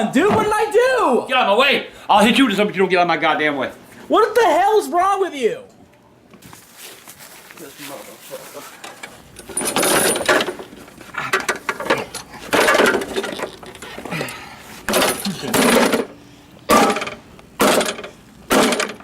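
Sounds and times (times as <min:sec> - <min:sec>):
lawn mower rattling bursts: 0:08.9 - 0:14.1, 0:14.8 - 0:19.0.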